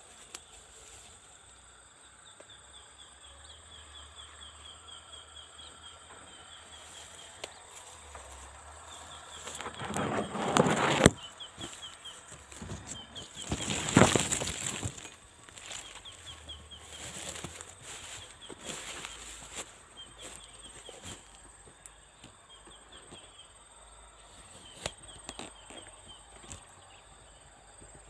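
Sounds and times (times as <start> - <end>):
loud rustle: 6.9 - 21.3.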